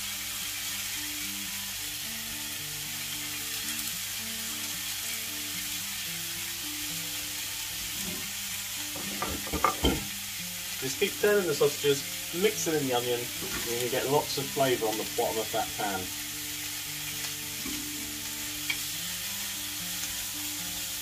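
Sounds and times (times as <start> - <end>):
sausages sizzling in a pan: 0.0 - 21.0.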